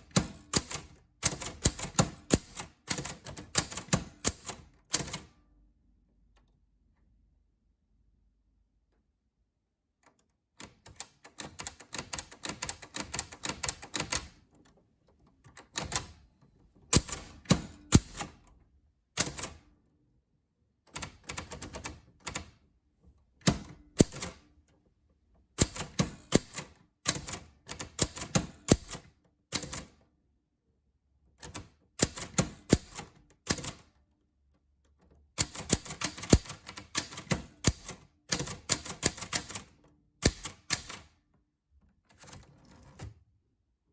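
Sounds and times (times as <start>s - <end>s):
typewriter keys clacking: 0.0s - 5.3s, 10.6s - 14.4s, 16.9s - 18.4s, 23.4s - 24.5s, 25.6s - 29.9s, 31.4s - 33.8s, 35.4s - 41.0s.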